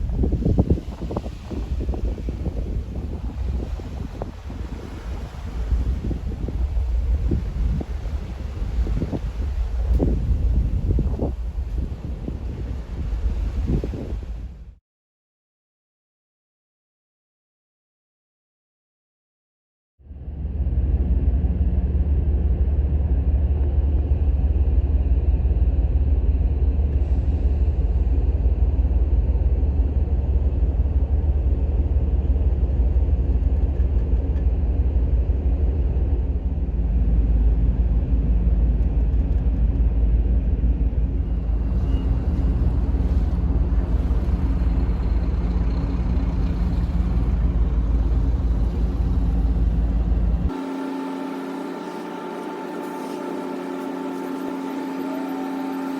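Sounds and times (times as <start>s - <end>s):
ship engines rumbling: 0.0s - 14.7s, 20.2s - 55.9s
water rushing along hull: 0.0s - 14.8s, 20.2s - 55.9s.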